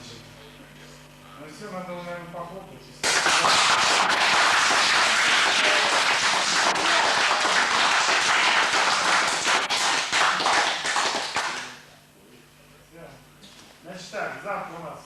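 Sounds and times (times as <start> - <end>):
people applauding: 3.0 - 11.8.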